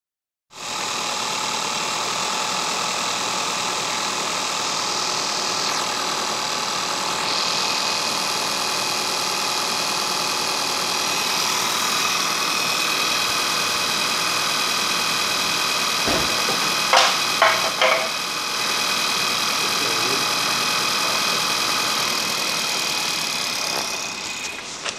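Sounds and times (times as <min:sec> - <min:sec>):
car engine idling: 0:16.1 - 0:18.3.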